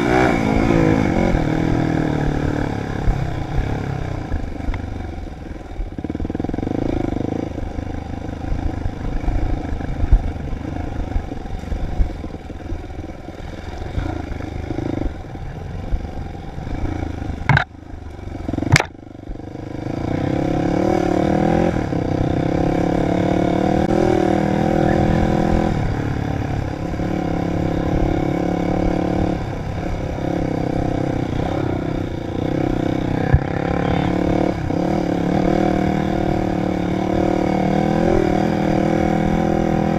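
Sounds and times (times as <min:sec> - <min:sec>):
dirt bike engine revving: 0:00.0 - 0:39.9
sharp knocks: 0:18.7 - 0:19.0.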